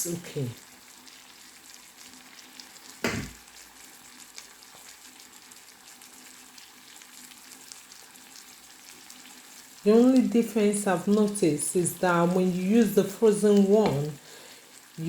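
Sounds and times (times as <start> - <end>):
food sizzling in a frying pan: 0.0 - 15.0
loud knock: 3.0 - 3.4.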